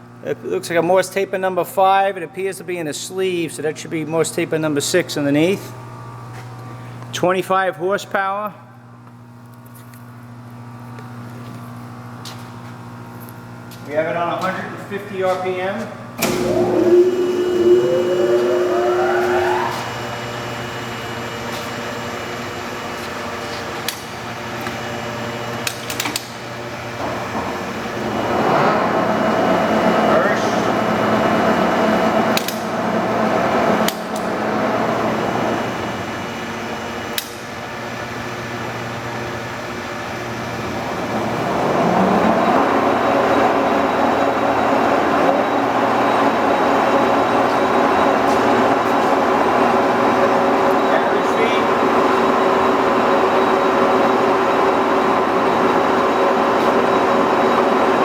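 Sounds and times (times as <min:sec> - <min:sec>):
lathe humming: 0:16.2 - 0:21.0, 0:27.0 - 0:37.1, 0:39.9 - 0:58.0.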